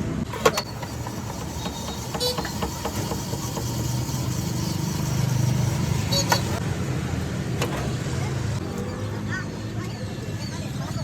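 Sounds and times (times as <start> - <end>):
motor humming: 0.3 - 6.6.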